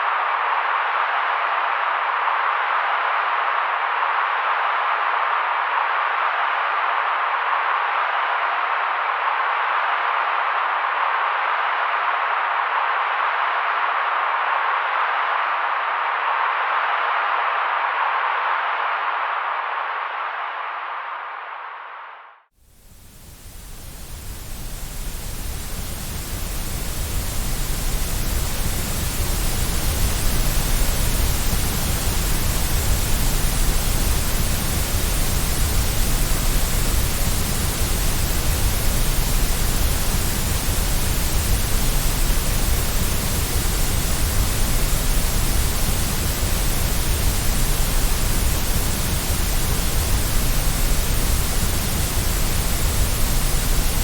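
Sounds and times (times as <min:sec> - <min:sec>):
steady white noise hiss: 0:22.6 - 0:54.0.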